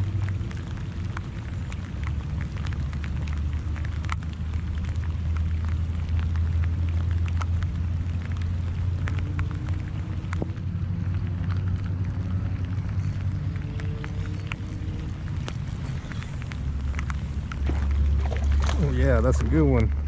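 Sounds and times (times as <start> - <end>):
raindrops tapping: 0.0 - 20.0
steady low rumble: 0.0 - 20.0.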